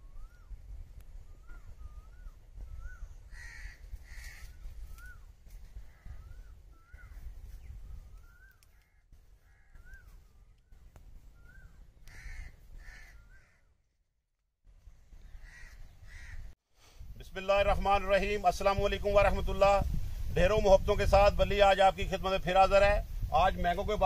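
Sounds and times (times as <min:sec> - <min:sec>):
birds calling: 0:01.2 - 0:13.9, 0:14.9 - 0:16.6
harsh bird calls: 0:01.4 - 0:13.8, 0:15.1 - 0:16.6.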